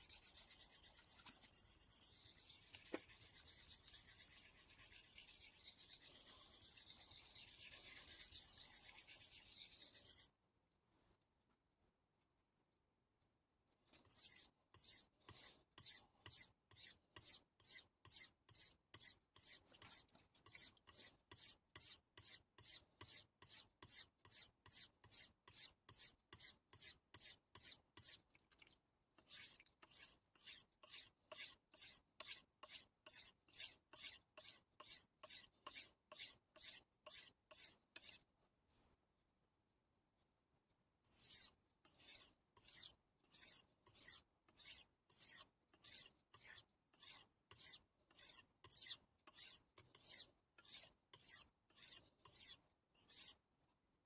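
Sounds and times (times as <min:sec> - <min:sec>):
knife scraping on whetstone: 0:14.1 - 0:28.2, 0:29.2 - 0:38.2, 0:41.1 - 0:53.4.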